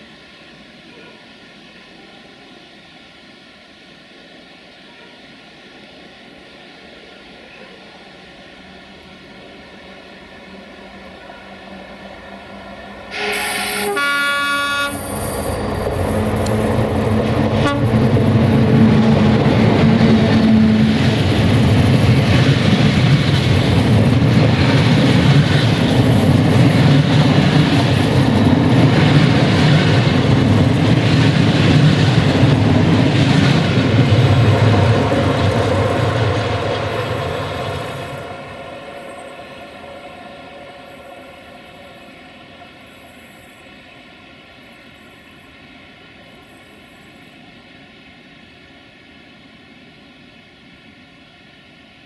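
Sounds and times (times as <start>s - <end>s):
train wheels rumbling and clacking: 8.6s - 45.2s
locomotive horn blast: 13.1s - 15.2s, 17.5s - 18.2s.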